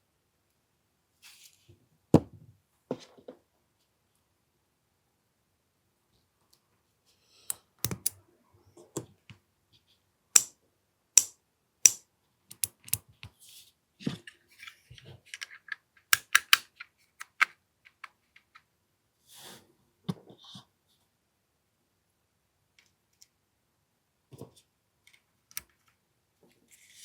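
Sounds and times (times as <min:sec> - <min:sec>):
pistol parts clicking and clacking: 0:07.8 - 0:08.2, 0:10.4 - 0:10.6, 0:11.2 - 0:13.1, 0:15.4 - 0:17.5.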